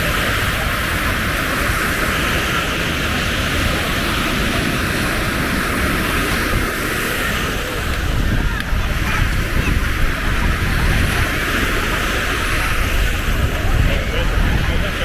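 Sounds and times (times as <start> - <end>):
ocean surf on beach: 0.0 - 15.0.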